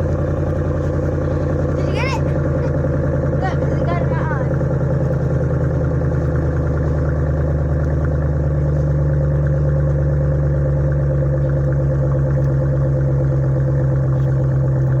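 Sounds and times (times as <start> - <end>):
pickup truck engine idling: 0.0 - 15.0.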